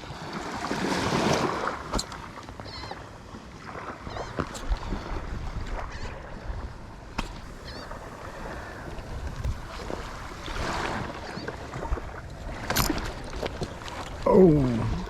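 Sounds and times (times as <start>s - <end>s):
small waves washing at shore: 0.0s - 15.0s
wind on microphone: 4.1s - 15.0s.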